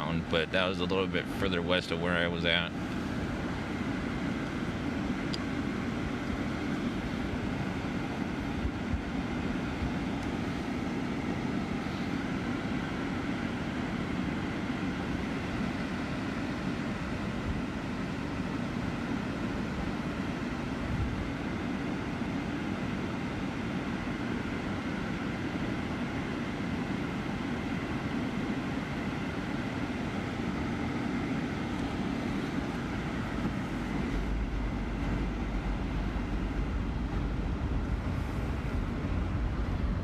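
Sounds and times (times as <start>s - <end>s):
vehicle rumble from inside cabin: 0.0s - 40.0s.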